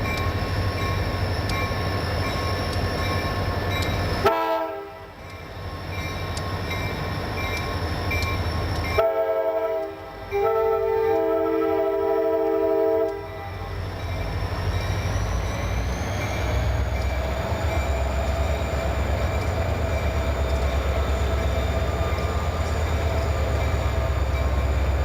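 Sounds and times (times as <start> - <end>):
locomotive engine rumbling: 0.0 - 25.0
locomotive air horn chord: 4.2 - 5.2, 9.0 - 13.7.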